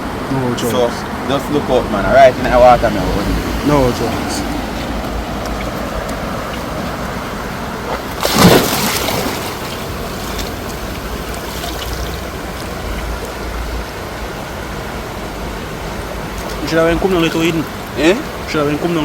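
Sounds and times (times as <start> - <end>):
stream water flowing: 0.0 - 19.0
water splash: 3.2 - 13.8.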